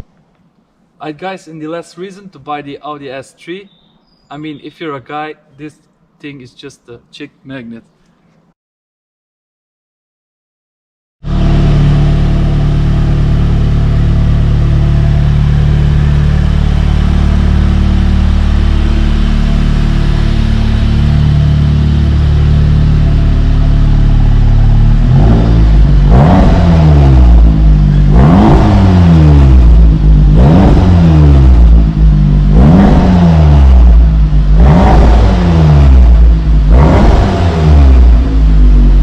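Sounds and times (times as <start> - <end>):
car engine idling and revving: 11.2 - 39.0.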